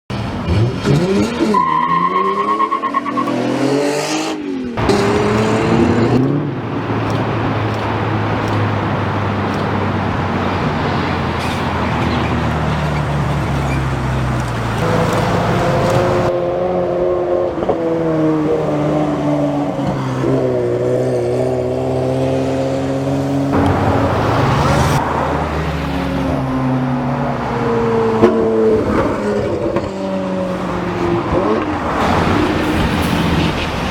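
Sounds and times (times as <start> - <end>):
car engines revving and accelerating: 0.1 - 33.9.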